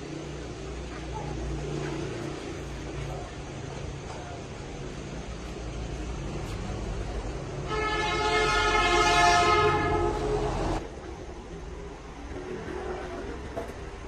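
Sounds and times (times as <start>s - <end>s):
steady horn: 7.6s - 10.8s.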